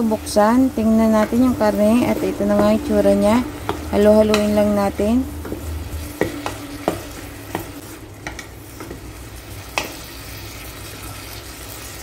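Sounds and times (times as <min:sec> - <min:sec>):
food sizzling in oil: 0:00.0 - 0:12.0
spatula knocking on pot: 0:01.0 - 0:09.0.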